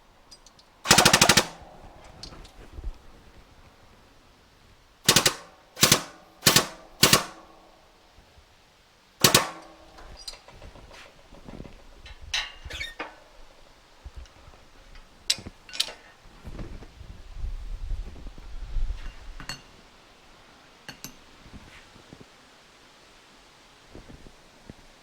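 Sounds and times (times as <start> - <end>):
metal parts clicking and tapping: 0.3 - 2.5, 5.1 - 7.5, 9.2 - 10.9, 14.2 - 16.1, 20.9 - 21.2.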